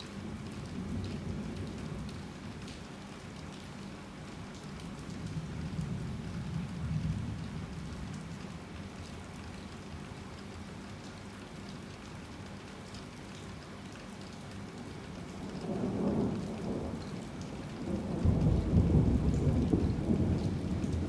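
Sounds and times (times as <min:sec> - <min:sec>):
heavy rain falling: 0:14.2 - 0:21.0
distant thunder rumble: 0:17.8 - 0:21.0.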